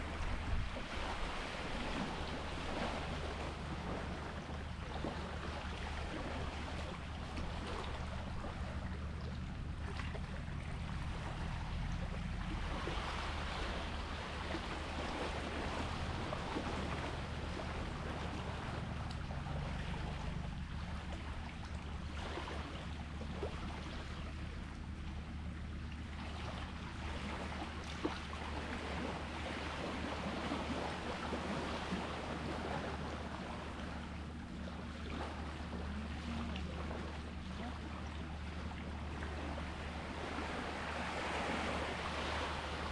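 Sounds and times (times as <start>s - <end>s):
low hum: 0.0s - 42.9s
sea waves washing: 0.0s - 42.9s.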